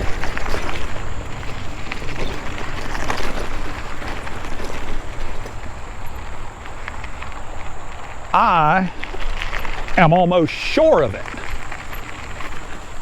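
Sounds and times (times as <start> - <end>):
wind buffeting microphone: 0.0 - 10.2
tyre and road noise: 0.0 - 13.0.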